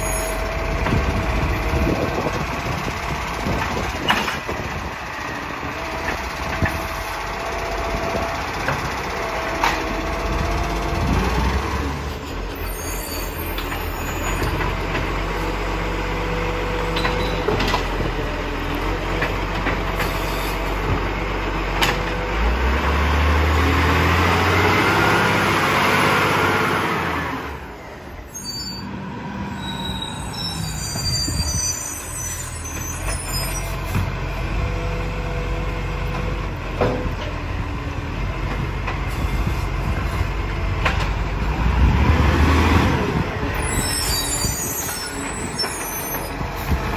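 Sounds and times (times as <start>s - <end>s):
garbage truck engine revving: 20.6s - 27.6s, 41.2s - 43.5s.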